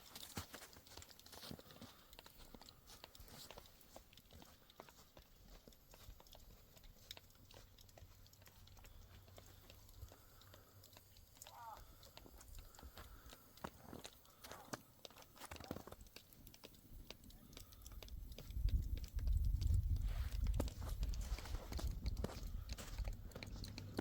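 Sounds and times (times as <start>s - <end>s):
small clicks and crunches: 0.0s - 24.0s.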